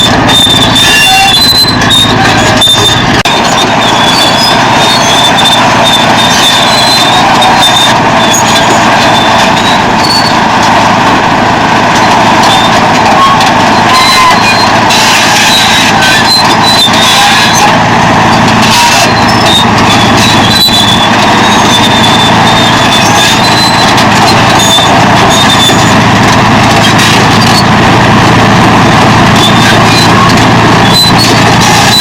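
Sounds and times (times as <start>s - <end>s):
bulldozer diesel engine under load: 0.0s - 32.0s
short high-pitched squeals: 0.0s - 32.0s.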